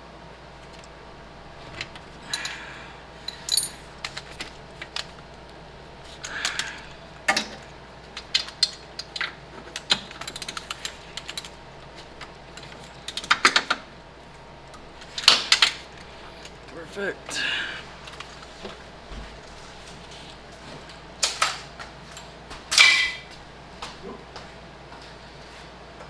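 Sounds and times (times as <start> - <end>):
metal hand tools clinking: 3.2 - 4.2.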